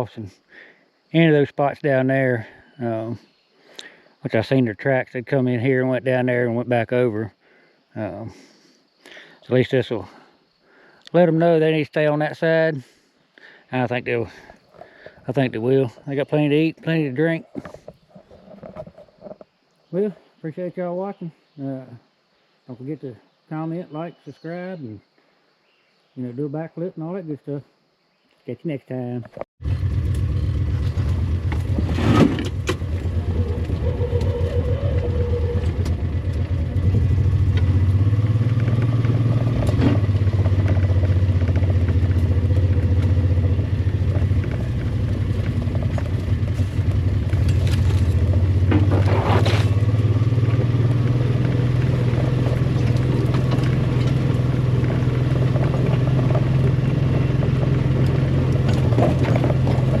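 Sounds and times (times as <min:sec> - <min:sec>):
vehicle engine running: 0:29.6 - 1:00.0
sharp knocks and rattles: 0:51.4 - 1:00.0.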